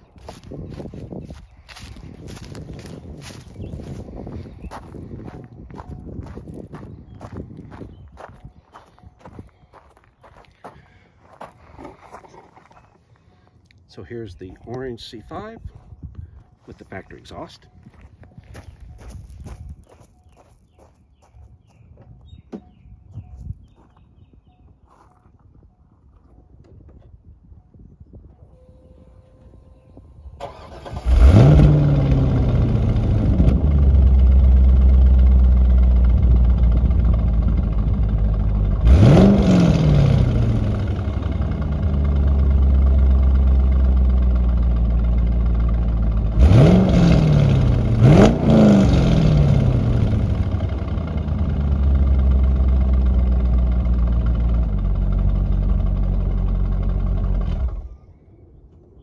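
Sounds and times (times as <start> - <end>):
car engine starting and revving: 30.4 - 58.0.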